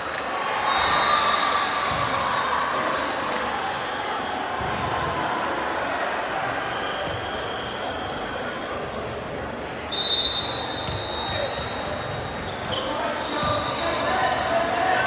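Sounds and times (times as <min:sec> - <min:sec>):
echoing hum of voices: 0:00.0 - 0:15.0
sneakers squeaking on court: 0:02.9 - 0:05.3, 0:10.4 - 0:15.0.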